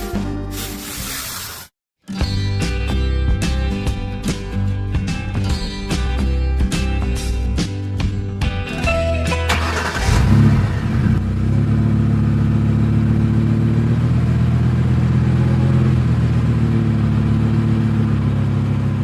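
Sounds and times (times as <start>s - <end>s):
low engine-like hum: 9.9s - 19.0s.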